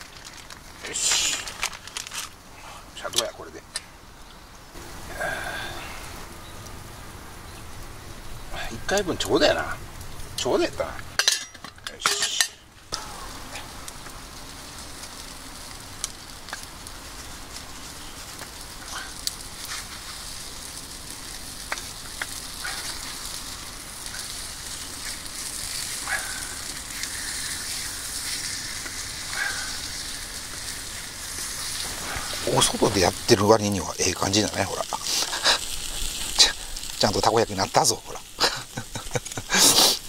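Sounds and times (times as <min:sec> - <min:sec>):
batter sizzling in a pan: 0:00.0 - 0:02.4, 0:11.9 - 0:40.0.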